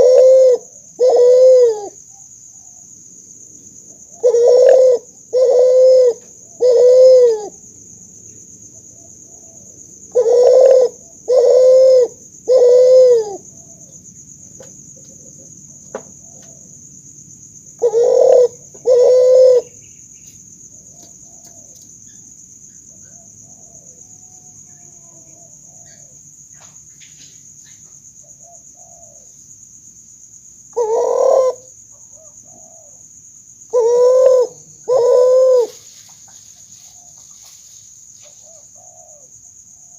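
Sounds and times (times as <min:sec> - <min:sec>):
dove cooing: 0:00.0 - 0:02.0, 0:04.0 - 0:07.6, 0:08.9 - 0:14.0, 0:17.8 - 0:19.8, 0:20.8 - 0:21.8, 0:22.9 - 0:26.2, 0:28.2 - 0:29.3, 0:30.7 - 0:33.0, 0:33.7 - 0:35.8, 0:38.2 - 0:39.9.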